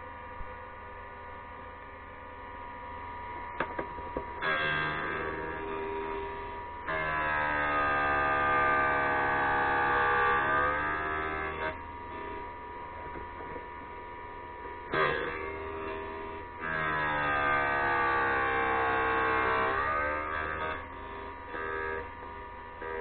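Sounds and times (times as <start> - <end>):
grinder motor whine: 0.0 - 23.0
drill bit grinding on wheel: 4.4 - 12.5, 14.6 - 23.0.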